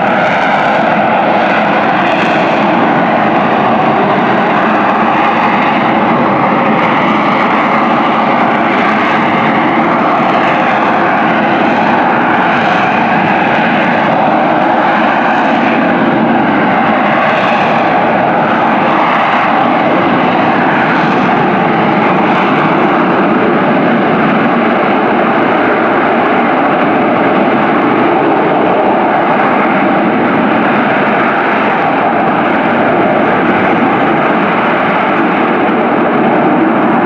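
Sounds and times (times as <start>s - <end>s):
jet engine running loud: 0.0s - 37.0s.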